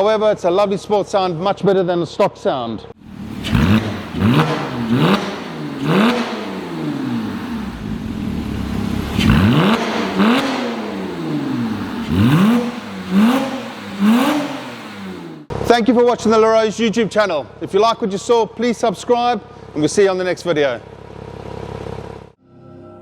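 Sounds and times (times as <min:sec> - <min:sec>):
car engine revving: 0:03.0 - 0:15.5.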